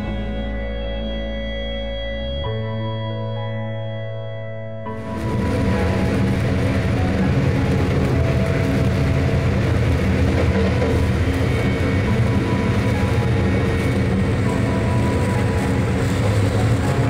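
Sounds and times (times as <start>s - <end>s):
train rumbling on rails: 4.9s - 17.0s.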